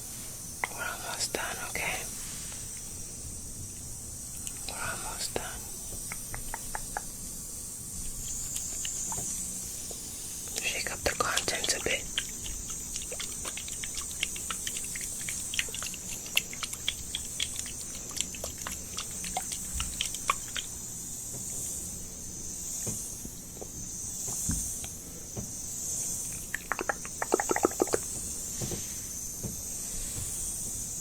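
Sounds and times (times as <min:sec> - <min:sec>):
steady high hiss: 0:00.0 - 0:31.0
wet mouth clicks and tongue pops: 0:04.4 - 0:04.8, 0:06.0 - 0:07.1, 0:08.0 - 0:10.6, 0:11.2 - 0:20.8, 0:26.3 - 0:28.1.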